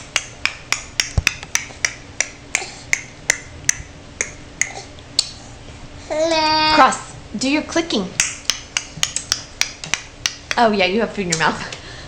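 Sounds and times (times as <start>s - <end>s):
baby clicking tongue: 0.2s - 5.4s, 8.2s - 10.4s.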